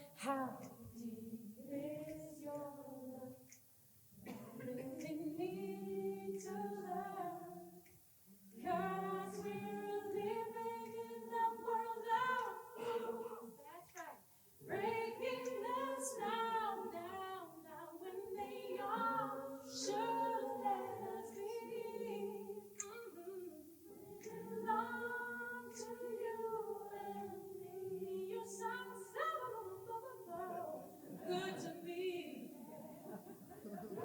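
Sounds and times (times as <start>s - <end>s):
a cappella voices singing in harmony: 0.0s - 34.0s.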